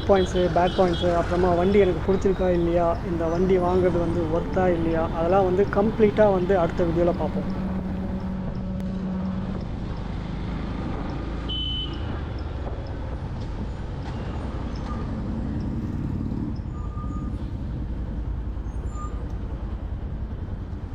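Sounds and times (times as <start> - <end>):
vehicle horns tooting: 0.0 - 8.3, 11.5 - 12.1
motorcycle engine and road noise: 0.0 - 20.9.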